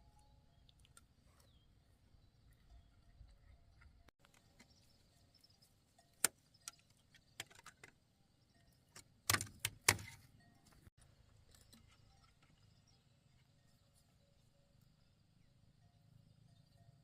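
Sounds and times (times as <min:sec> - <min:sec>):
sharp knocks and clicks: 0:08.9 - 0:10.2.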